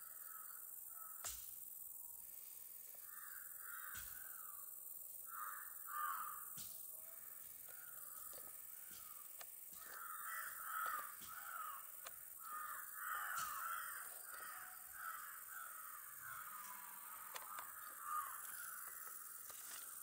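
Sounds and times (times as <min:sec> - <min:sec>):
birds calling: 0:07.7 - 0:20.0.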